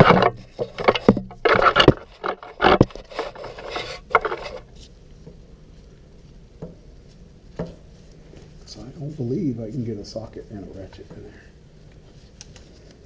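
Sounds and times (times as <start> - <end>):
wrench scraping on metal: 0.0 - 4.7.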